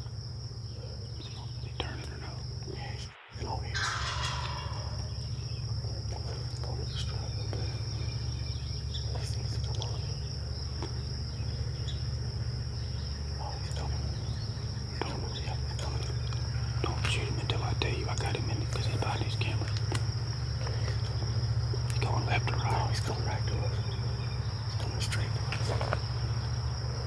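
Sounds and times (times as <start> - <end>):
high-pitched insect drone: 0.0 - 27.0
low hum: 0.0 - 27.0
small rustles: 25.2 - 26.4.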